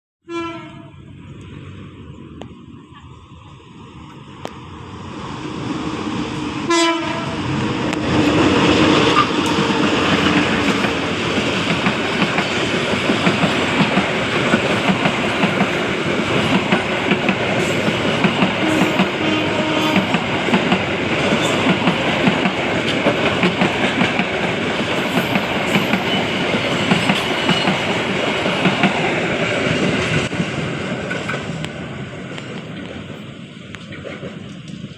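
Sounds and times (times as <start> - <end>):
train horn: 0.2 - 1.1, 6.6 - 7.4, 8.8 - 11.1, 18.6 - 20.3
train wheels clattering on rails: 7.0 - 34.9.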